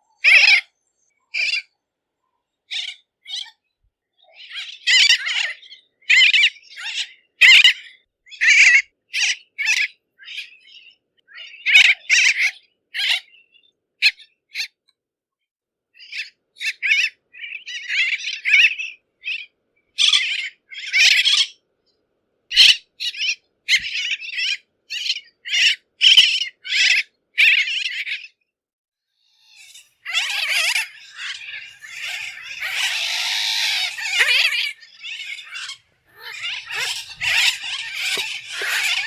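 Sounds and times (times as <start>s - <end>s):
tern harsh calls: 29.3s - 39.0s.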